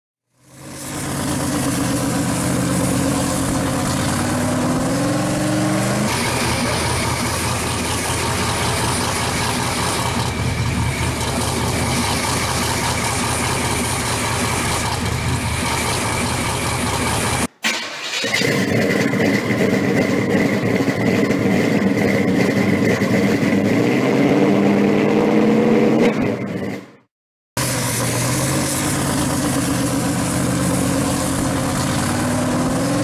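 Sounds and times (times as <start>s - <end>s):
car engine idling: 0.4s - 18.0s, 27.6s - 33.0s.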